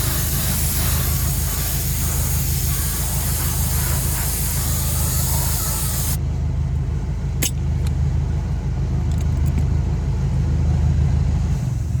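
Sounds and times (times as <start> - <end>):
spray gun hissing: 0.0 - 6.2
low engine hum: 0.0 - 12.0.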